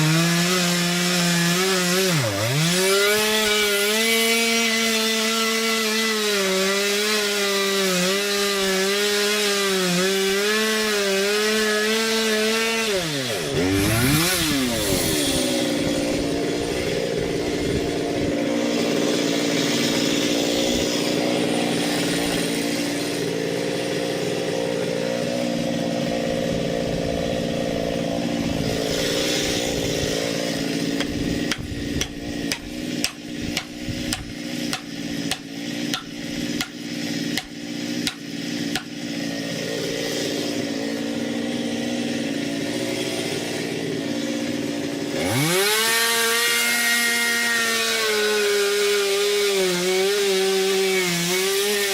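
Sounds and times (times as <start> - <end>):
chainsaw cutting wood: 0.0 - 51.9
chainsaw running: 0.0 - 51.9.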